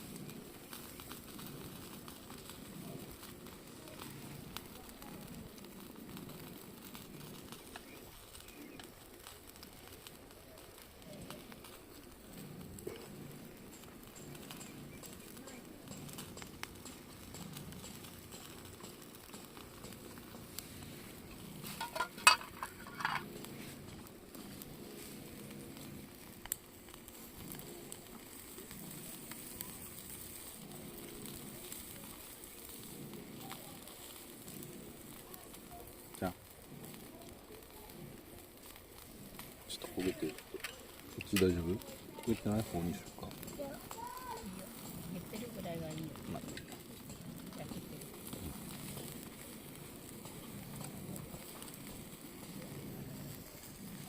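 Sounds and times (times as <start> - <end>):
food sizzling on a grill: 0.0 - 54.0
low soft bird calls: 7.4 - 9.1.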